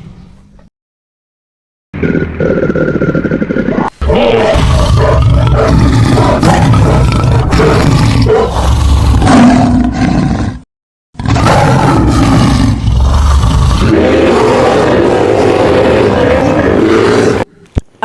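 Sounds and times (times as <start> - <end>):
loud animal roaring: 2.0 - 17.5.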